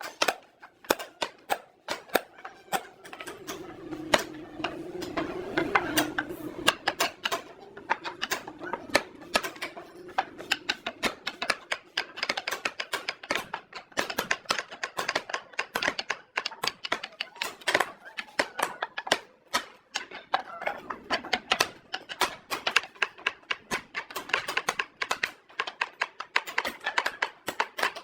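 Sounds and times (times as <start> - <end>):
steady low hum: 1.8 - 11.6.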